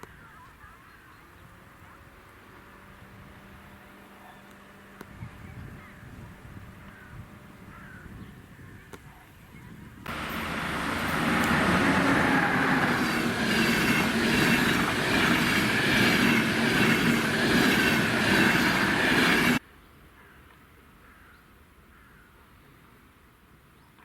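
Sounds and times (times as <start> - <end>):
train passing on track: 10.1 - 19.6.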